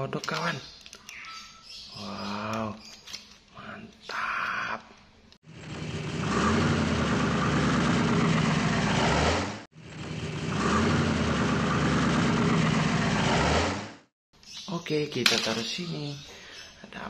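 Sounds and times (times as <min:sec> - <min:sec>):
car engine running: 0:05.5 - 0:14.1.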